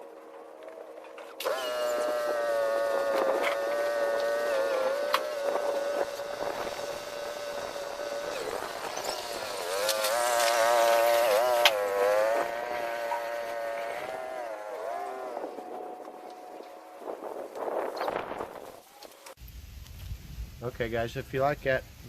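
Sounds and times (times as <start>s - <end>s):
small gasoline engine running: 0.7s - 17.4s
sharp cracks: 1.2s - 14.1s.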